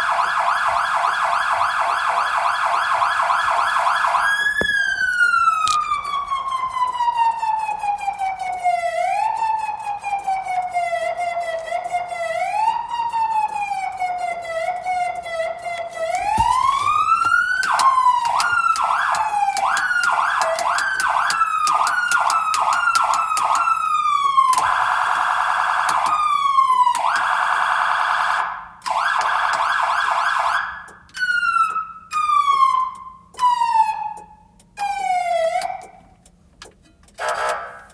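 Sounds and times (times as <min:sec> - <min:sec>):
fire engine siren wailing and yelping: 0:00.0 - 0:36.1, 0:37.2 - 0:37.9.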